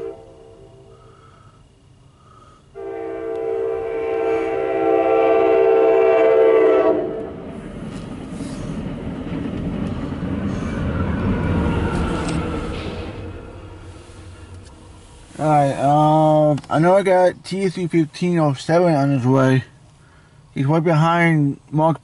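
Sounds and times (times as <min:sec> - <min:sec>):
train air horn blast: 0:00.0 - 0:01.3, 0:02.7 - 0:07.6, 0:11.8 - 0:15.9
train rumbling past: 0:00.0 - 0:21.6.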